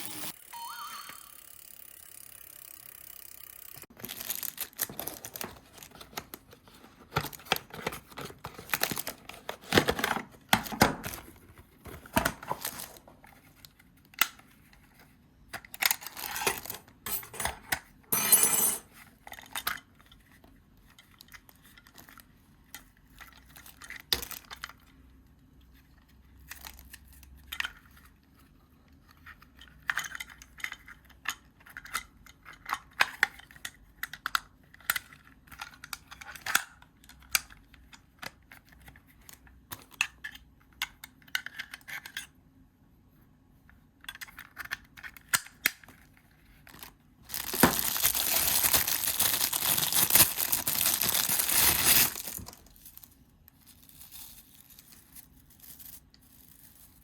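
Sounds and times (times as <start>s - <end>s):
plastic packaging crinkling: 3.9s - 10.2s, 46.6s - 57.0s.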